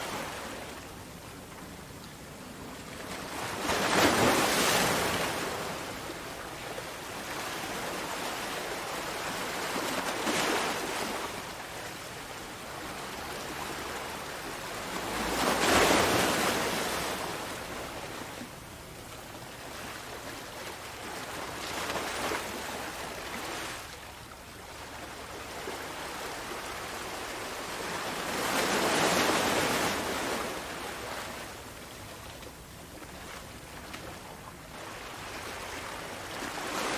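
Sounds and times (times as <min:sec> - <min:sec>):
sea waves breaking: 0:02.4 - 0:18.5, 0:24.8 - 0:36.9.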